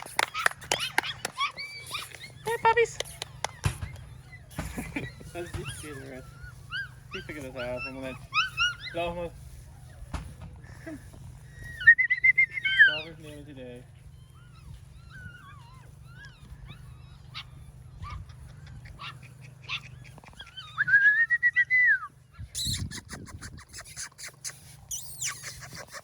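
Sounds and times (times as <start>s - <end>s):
puppies whimpering and squeaking: 0.0s - 26.0s.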